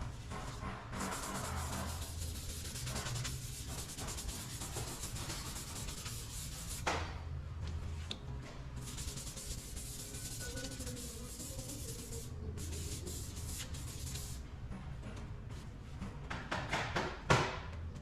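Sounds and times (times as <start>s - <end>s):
sandpaper scraping on a panel: 1.0s - 6.8s, 8.8s - 14.4s.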